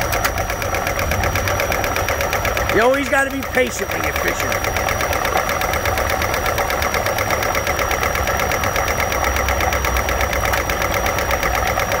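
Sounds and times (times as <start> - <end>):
engine valvetrain clatter: 0.0 - 12.0.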